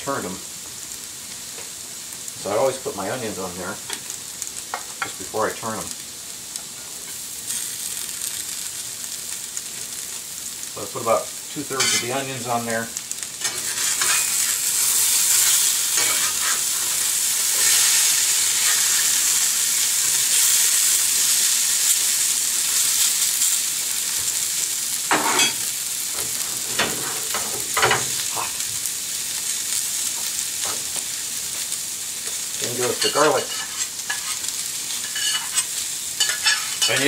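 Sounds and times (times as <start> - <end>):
potatoes and onions sizzling: 0.0 - 37.0
metal spatula scraping pan: 13.4 - 14.5, 15.3 - 16.9, 32.9 - 37.0.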